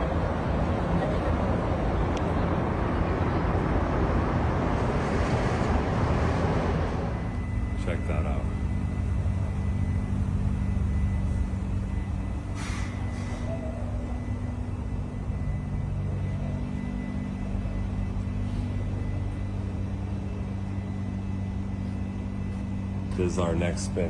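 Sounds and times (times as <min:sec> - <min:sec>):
car engine idling: 0:07.1 - 0:24.0
brief hiss: 0:12.6 - 0:13.4.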